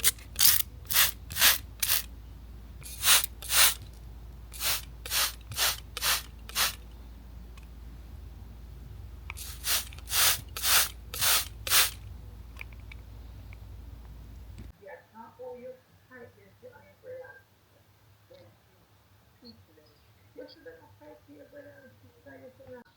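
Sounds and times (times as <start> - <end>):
hand sprayer squirts: 0.0 - 2.1, 2.8 - 3.8, 4.5 - 6.8, 9.3 - 12.0.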